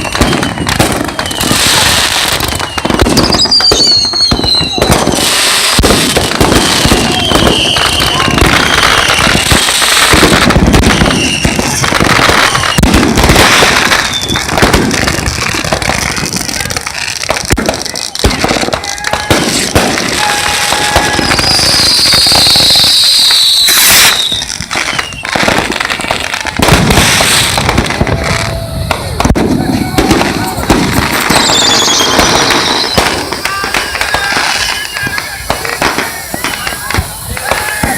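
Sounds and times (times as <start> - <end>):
high hissing whistle: 0.0 - 5.7, 6.7 - 10.1, 11.1 - 11.6, 12.2 - 12.8, 20.2 - 25.4, 30.4 - 37.9
firecrackers crackling and banging: 0.0 - 37.9
sharp crack: 23.3 - 37.9.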